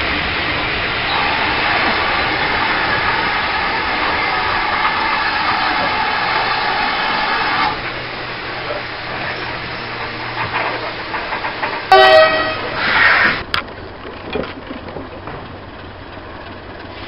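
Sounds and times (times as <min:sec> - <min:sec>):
train coaches rolling on rails: 0:00.0 - 0:17.0.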